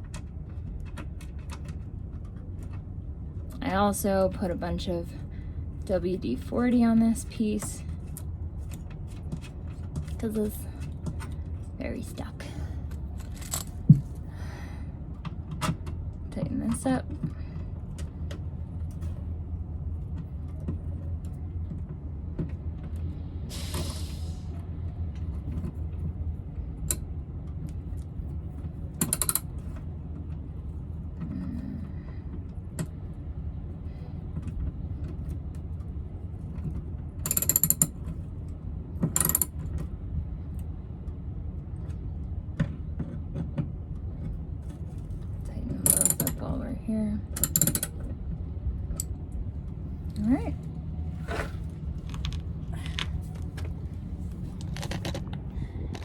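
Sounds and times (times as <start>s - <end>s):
steady low hum: 0.0s - 56.0s
ratcheting hand tools clicking: 29.0s - 29.4s, 37.3s - 37.9s, 39.2s - 39.5s, 45.8s - 46.3s, 47.4s - 47.9s.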